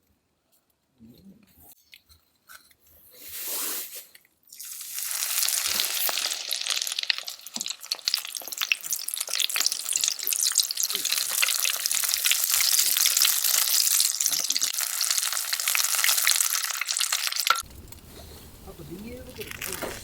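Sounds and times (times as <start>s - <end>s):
food sizzling in a pan: 3.2s - 17.7s.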